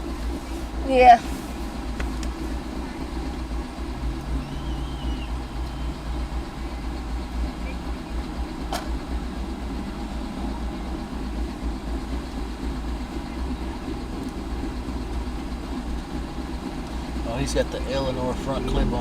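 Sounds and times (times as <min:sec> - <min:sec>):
car engine idling: 0:00.0 - 0:19.0
low hum: 0:00.0 - 0:19.0.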